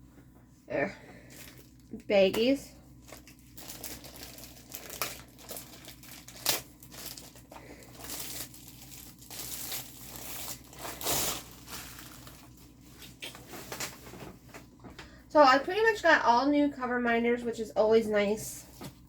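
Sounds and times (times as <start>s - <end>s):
plastic baggies crinkling: 1.2s - 14.8s.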